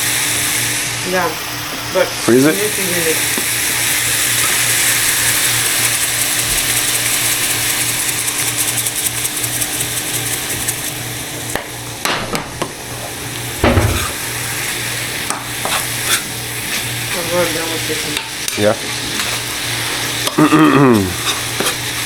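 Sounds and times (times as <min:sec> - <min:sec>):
meat sizzling in a frying pan: 0:00.0 - 0:22.0
utensil knocking against pan: 0:13.6 - 0:14.3.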